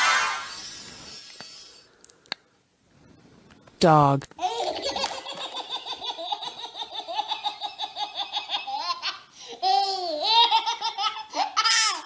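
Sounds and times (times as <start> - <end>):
baby squealing: 0.0 - 1.8
baby laughing: 4.4 - 12.0.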